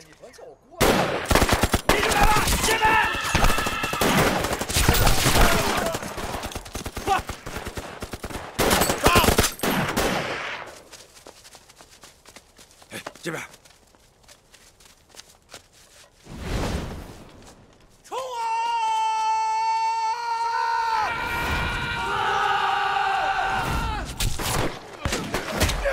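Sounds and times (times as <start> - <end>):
rifle and machine-gun fire: 0.8 - 10.7.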